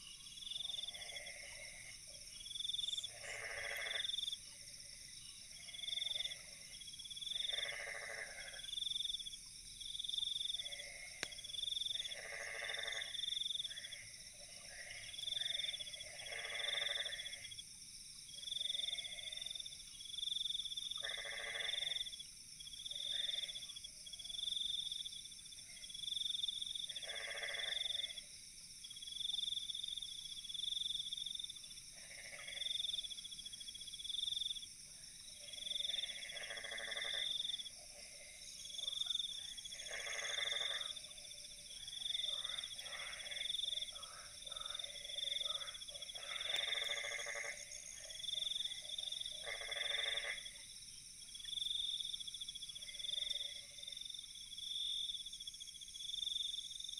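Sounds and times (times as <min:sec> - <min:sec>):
insect trill: 0:00.0 - 0:56.9
frog croaks: 0:00.6 - 0:04.4, 0:05.6 - 0:09.1, 0:10.4 - 0:17.6, 0:18.4 - 0:19.6, 0:20.8 - 0:22.2, 0:22.8 - 0:24.4, 0:26.8 - 0:28.3, 0:31.9 - 0:33.1, 0:35.2 - 0:50.6, 0:51.4 - 0:54.1.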